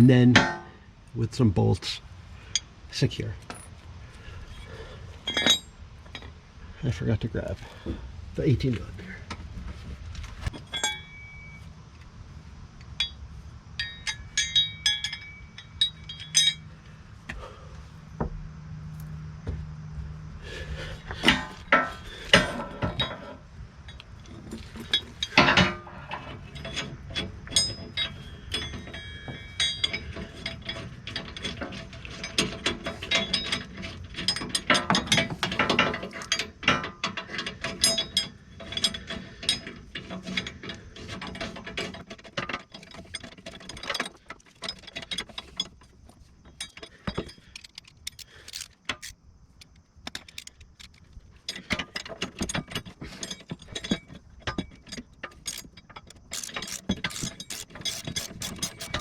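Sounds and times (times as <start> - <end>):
metal knocks: 0.0 - 0.8
socket ratchet clicking: 47.5 - 51.1, 55.4 - 59.0.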